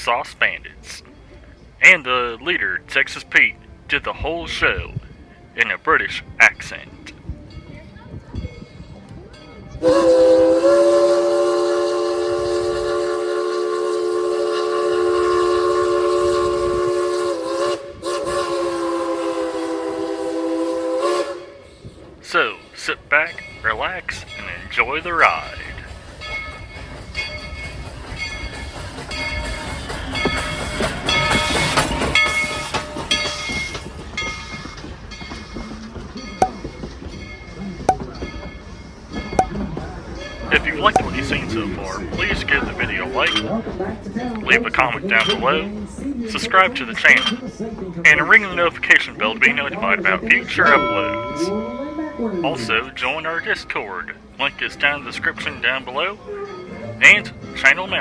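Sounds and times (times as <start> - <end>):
train rumble: 0.0 - 58.0
steam locomotive whistle blast: 9.8 - 21.9
locomotive bell ringing: 22.3 - 43.8, 44.5 - 45.7, 46.3 - 58.0.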